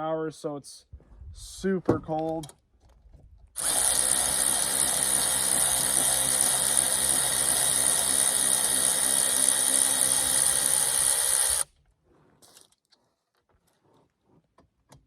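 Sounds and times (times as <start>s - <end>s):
cordless ratchet motor running: 3.6s - 11.7s.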